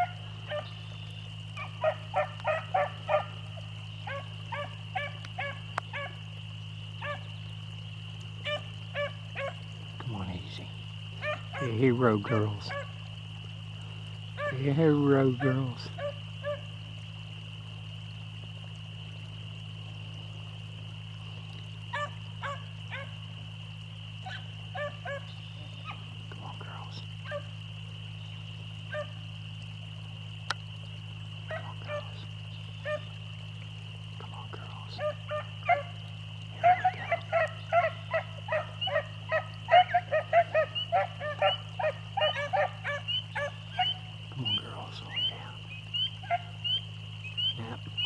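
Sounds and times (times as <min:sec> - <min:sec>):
dogs baying: 0:00.0 - 0:00.8, 0:01.6 - 0:03.4, 0:04.0 - 0:06.2, 0:07.0 - 0:07.2, 0:08.4 - 0:09.6, 0:11.2 - 0:13.0, 0:14.4 - 0:16.7, 0:21.9 - 0:23.2, 0:24.2 - 0:26.1, 0:27.2 - 0:27.6, 0:28.9 - 0:29.2, 0:31.4 - 0:32.2, 0:32.8 - 0:33.2, 0:35.0 - 0:46.8.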